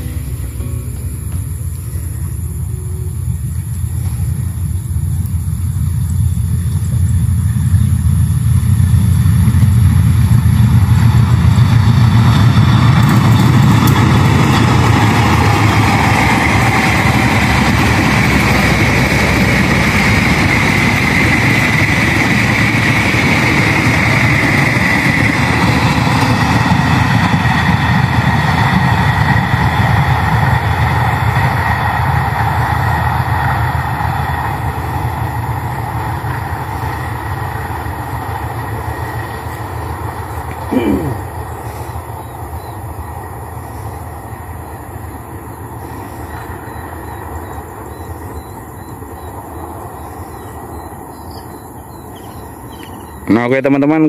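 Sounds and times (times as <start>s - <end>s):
high tone: 0.0s - 4.6s
train wheels rumbling on rail: 0.0s - 54.0s.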